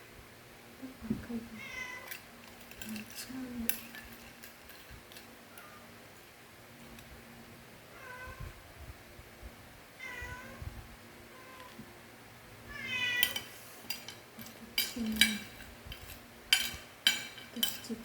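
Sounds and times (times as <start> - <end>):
cat meowing: 7.9 - 8.6, 10.0 - 10.6, 12.7 - 13.4.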